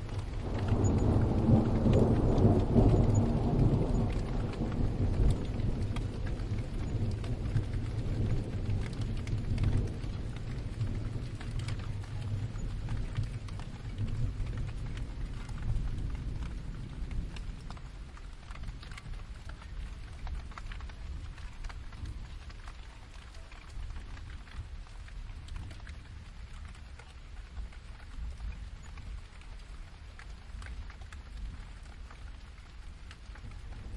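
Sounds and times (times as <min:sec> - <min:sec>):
distant thunder rumble: 0:00.0 - 0:24.4
steady rain: 0:00.0 - 0:33.9.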